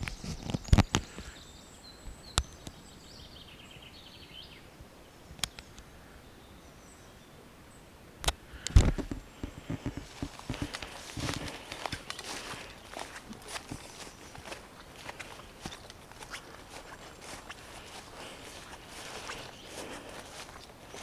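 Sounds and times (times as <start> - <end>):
sharp clicks: 5.4 - 5.9, 8.2 - 17.0
footsteps on forest floor: 8.6 - 21.0.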